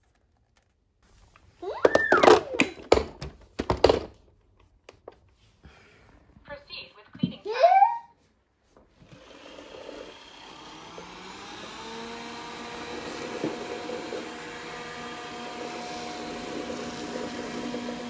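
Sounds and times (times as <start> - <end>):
robot vacuum whirring: 1.6 - 3.0, 9.0 - 18.0.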